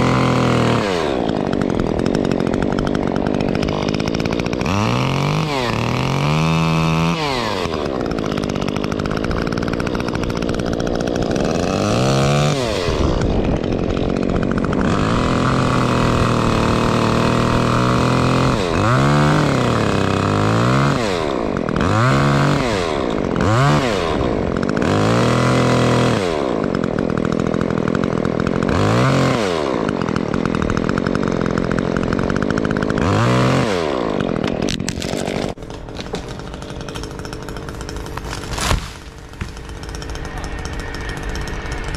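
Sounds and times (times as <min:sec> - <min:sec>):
chainsaw revving: 0:00.0 - 0:41.9.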